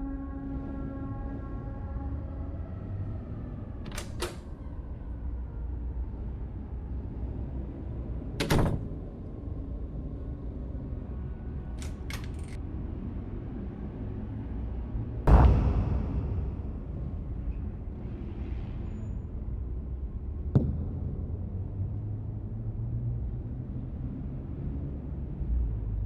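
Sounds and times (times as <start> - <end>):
steady low rumble: 15.2 - 23.9
loud thud: 15.3 - 17.5.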